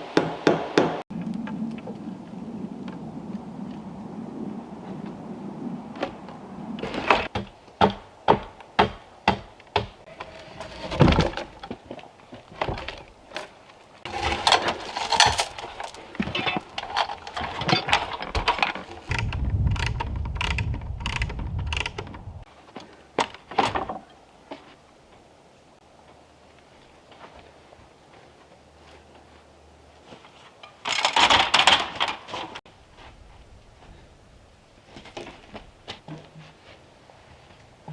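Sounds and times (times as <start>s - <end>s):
low rumble: 19.1s - 22.5s.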